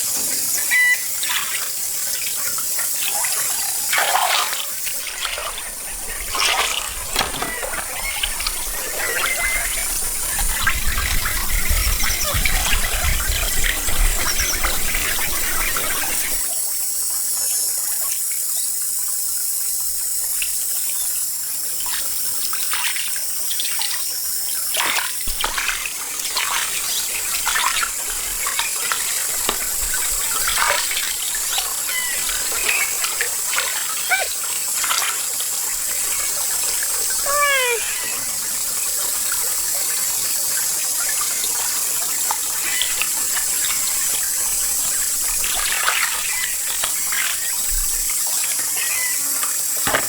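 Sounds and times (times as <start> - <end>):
water splashing from wading: 3.2 - 16.4
water dripping: 24.7 - 35.1.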